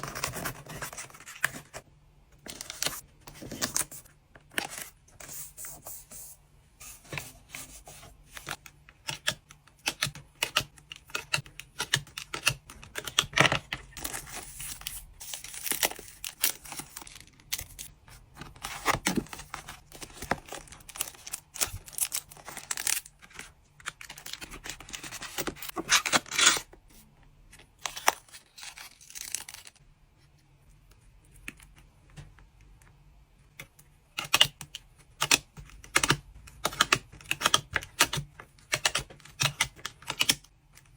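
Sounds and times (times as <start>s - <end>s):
cards and packaging handled: 0.0s - 32.4s.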